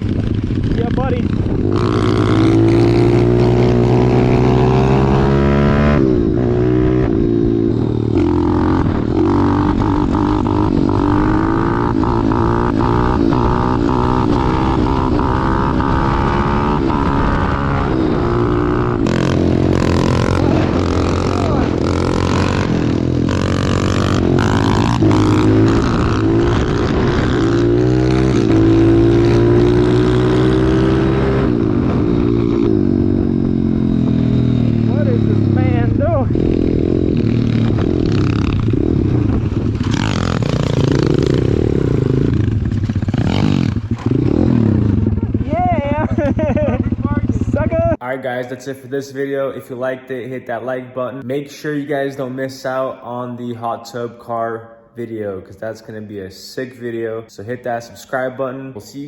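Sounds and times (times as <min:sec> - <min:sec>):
motorbike engine revving: 0:00.0 - 0:48.0.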